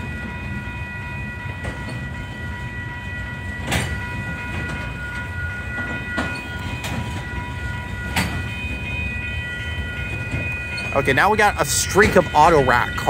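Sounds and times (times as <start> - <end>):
freight train rumble: 0.0 - 13.0
wheel clacks over rail joints: 8.0 - 8.8.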